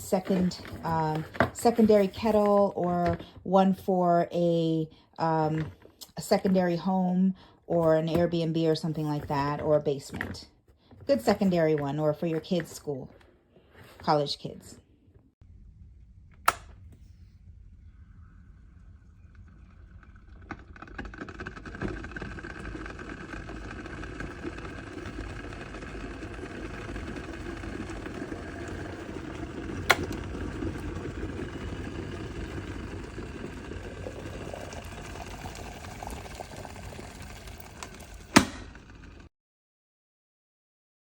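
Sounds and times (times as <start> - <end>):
kettle click: 16.4 - 16.7
electric kettle heating water: 19.1 - 39.3.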